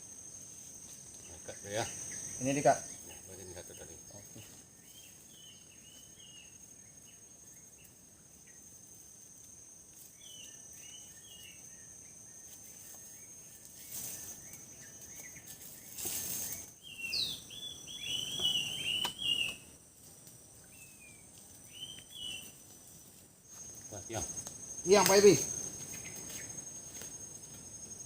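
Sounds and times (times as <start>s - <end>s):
high insect drone: 0.0s - 28.0s
small birds chirping: 1.0s - 9.0s, 9.9s - 19.8s, 20.4s - 28.0s
rustling or scraping noises: 12.5s - 16.8s.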